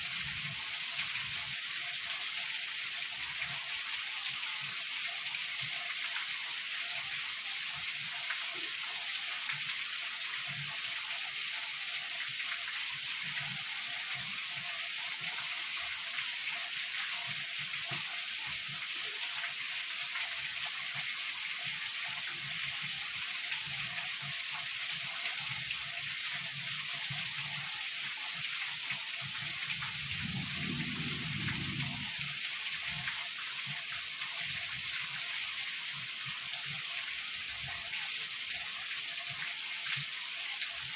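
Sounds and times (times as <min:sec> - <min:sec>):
heavy rain: 0:29.2 - 0:35.7
distant thunder rumble: 0:30.0 - 0:32.3.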